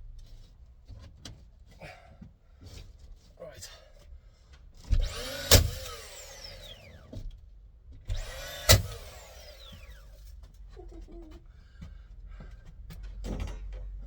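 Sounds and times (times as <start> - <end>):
nail gun shot: 4.9 - 6.7, 8.1 - 9.9
motor whine winding down: 5.0 - 7.1, 8.1 - 10.1.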